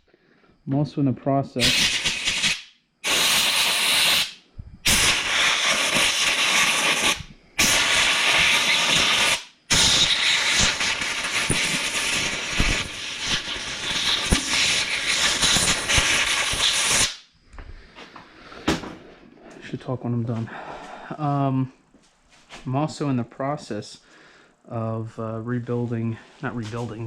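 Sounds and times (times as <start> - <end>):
compressed air hissing: 1.6 - 19.2.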